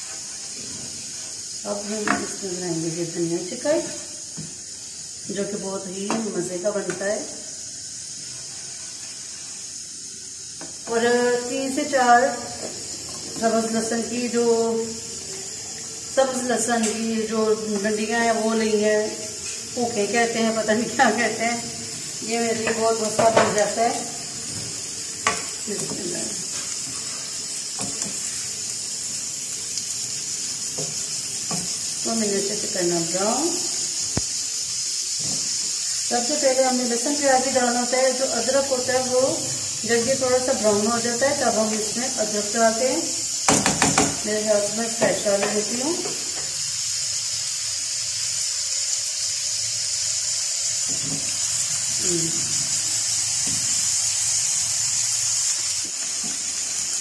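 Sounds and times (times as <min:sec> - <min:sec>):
onions sizzling in a pan: 0:00.0 - 0:57.0
spatula knocking against pan: 0:43.5 - 0:44.2.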